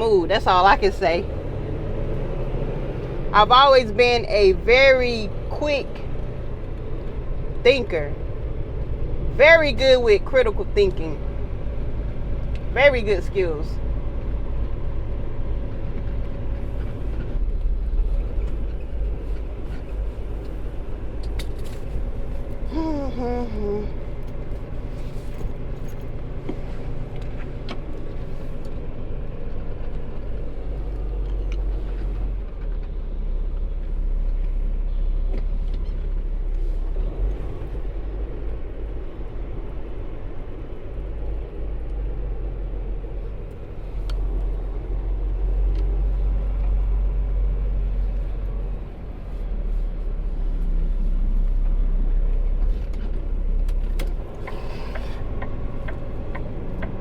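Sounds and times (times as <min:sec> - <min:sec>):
diesel truck engine rumbling: 0:00.0 - 0:57.0.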